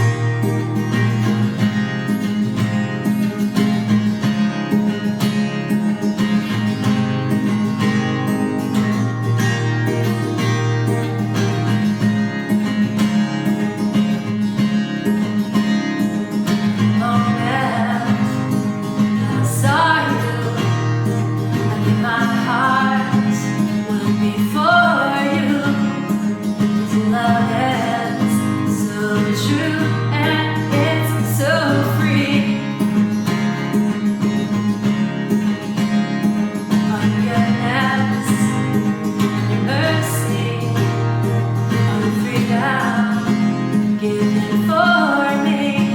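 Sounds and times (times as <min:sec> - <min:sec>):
acoustic guitar playing: 0:00.0 - 0:45.9
woman singing: 0:16.5 - 0:33.2, 0:36.7 - 0:45.9.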